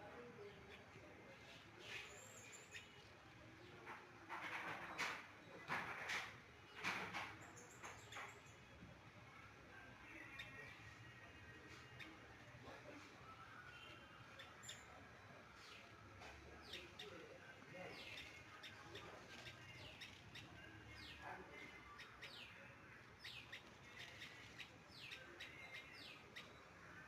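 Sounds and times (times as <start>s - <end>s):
faint bird chirps: 11.7s - 27.0s.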